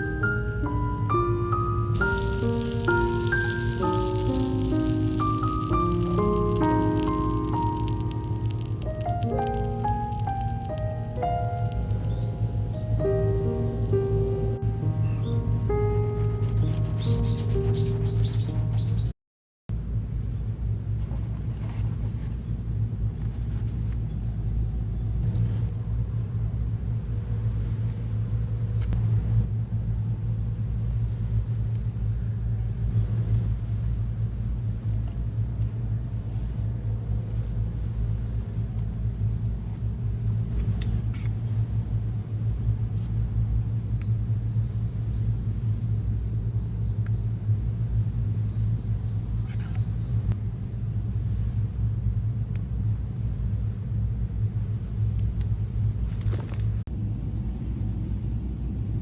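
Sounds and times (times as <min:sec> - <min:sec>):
steady low rumble: 0:00.0 - 0:16.9, 0:19.7 - 0:59.0
faint bird chirps: 0:16.2 - 0:19.1.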